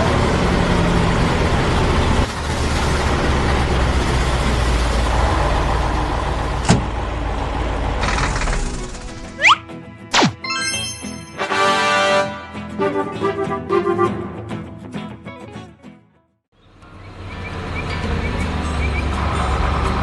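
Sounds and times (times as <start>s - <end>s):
heavy vehicle engine rumble: 0.0s - 9.3s, 16.6s - 20.0s.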